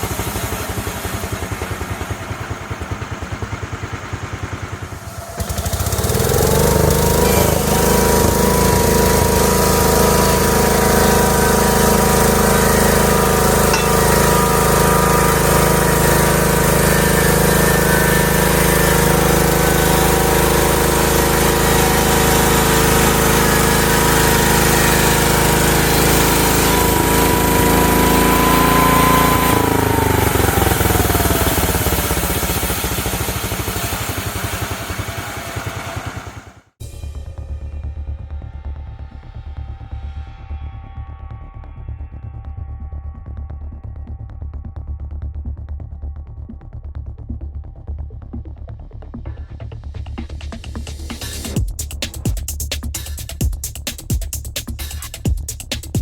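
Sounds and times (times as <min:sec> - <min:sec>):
sawmill engine revving: 0:00.0 - 0:36.8.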